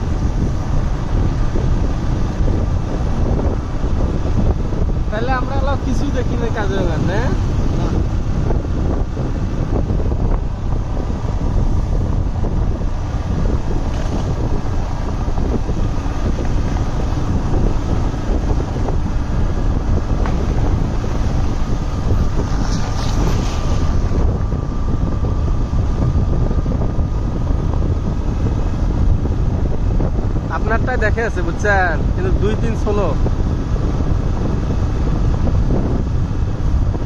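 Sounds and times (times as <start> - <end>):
vehicle driving on road rumble: 0.0 - 37.0
wind buffeting microphone: 0.0 - 37.0.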